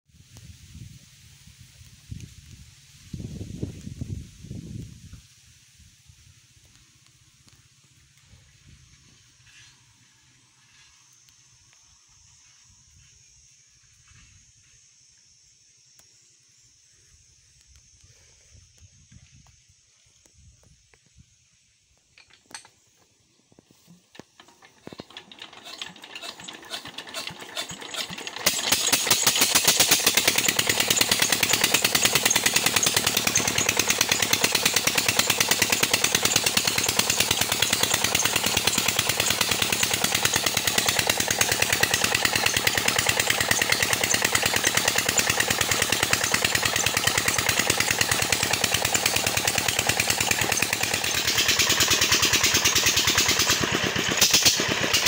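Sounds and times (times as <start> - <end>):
diesel engine knocking: 24.4 - 55.0.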